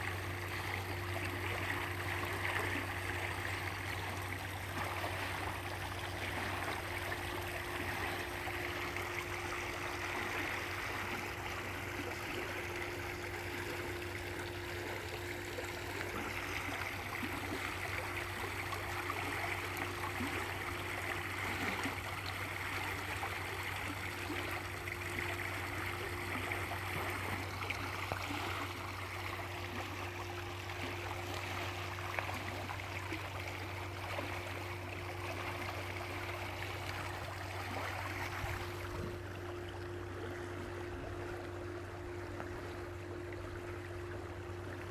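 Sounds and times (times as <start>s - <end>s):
low hum: 0.0s - 44.9s
stream water flowing: 0.0s - 44.9s.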